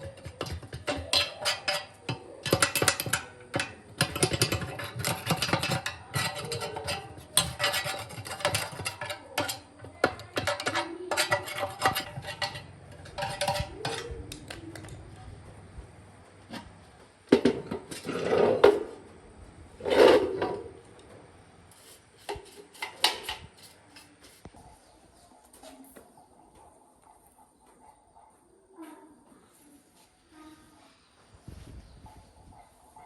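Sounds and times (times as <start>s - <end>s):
metal parts scraping and clinking: 10.2s - 14.9s, 21.7s - 24.5s.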